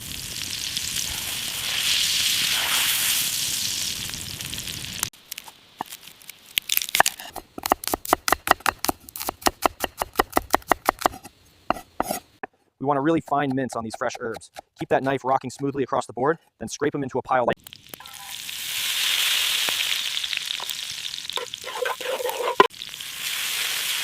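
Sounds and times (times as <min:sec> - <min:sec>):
food sizzling in a pan: 0:00.0 - 0:05.6, 0:17.7 - 0:24.0
knife chopping on cutting board: 0:07.0 - 0:12.2, 0:13.4 - 0:15.2.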